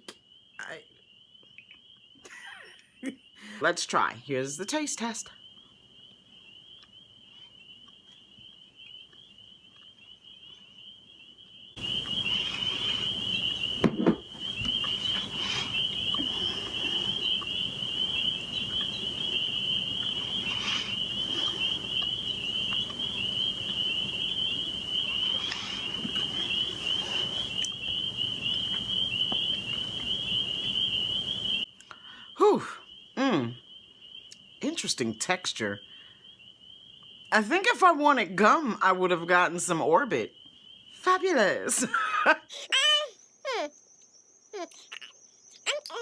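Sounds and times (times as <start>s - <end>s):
crickets chirping: 0.0s - 46.0s
thump: 13.8s - 14.3s
faint hiss: 25.0s - 27.8s.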